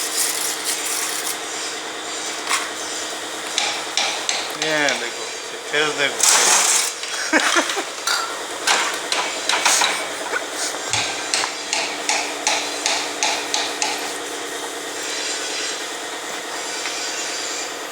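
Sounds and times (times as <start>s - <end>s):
steady mechanical hum: 0.0s - 17.9s
hammer blows on metal: 9.1s - 14.4s.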